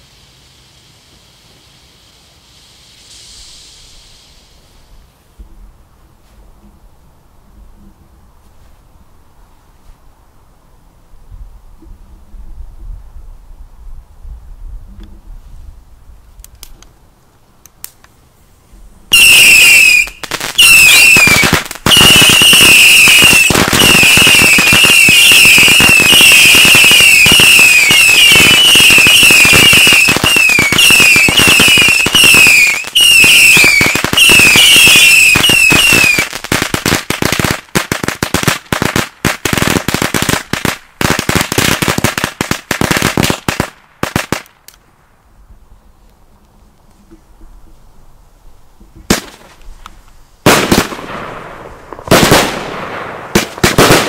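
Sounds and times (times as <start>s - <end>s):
falling firework whistles: 0.0s - 5.1s, 19.1s - 37.5s
rapid firework bangs: 19.2s - 44.5s, 49.1s - 49.6s, 50.4s - 54.0s.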